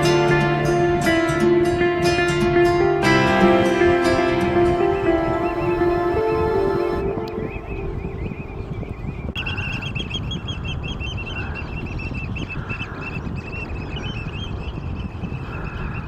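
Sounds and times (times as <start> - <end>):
low rushing noise: 0.0 - 9.4.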